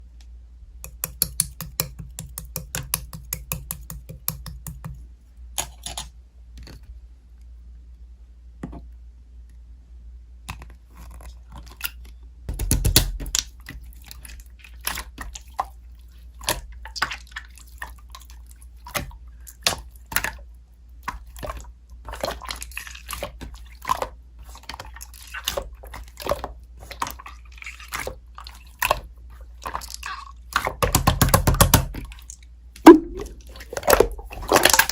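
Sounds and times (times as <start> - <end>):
slime clicking and popping: 0.9 - 4.8, 12.5 - 13.5.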